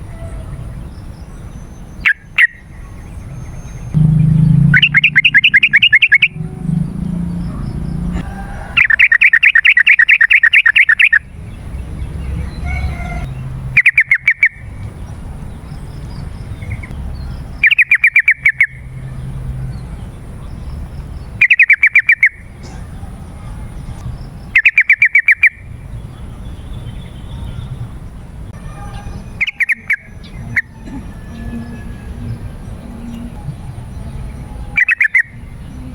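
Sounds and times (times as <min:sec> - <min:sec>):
bird chattering song: 0:01.0 - 0:08.2, 0:08.8 - 0:19.0, 0:19.8 - 0:23.1, 0:23.7 - 0:27.9, 0:28.5 - 0:35.9
low background rumble: 0:02.9 - 0:08.7.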